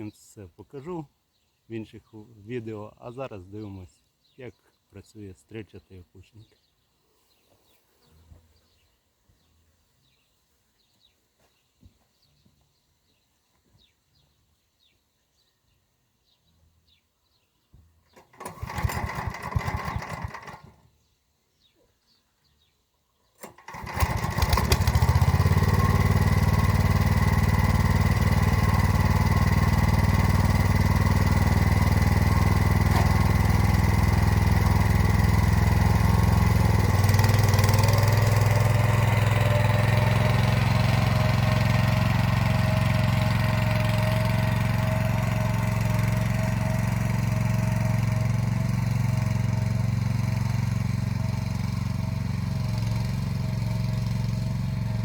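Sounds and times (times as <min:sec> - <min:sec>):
walk-behind tractor engine: 0:18.2 - 0:20.8, 0:23.4 - 0:55.0.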